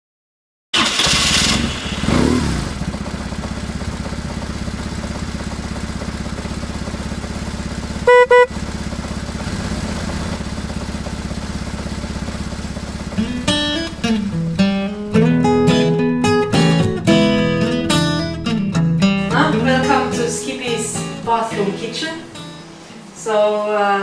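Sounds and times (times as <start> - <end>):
vehicle engine running: 0.8 - 21.5
short horn beeps: 8.0 - 8.6.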